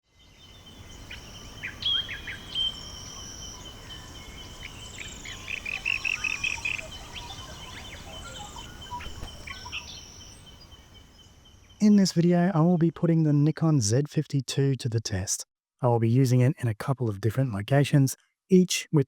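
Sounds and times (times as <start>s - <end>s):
birds calling and chirping: 0.2s - 12.0s
rapid sharp bird notes: 5.6s - 10.1s.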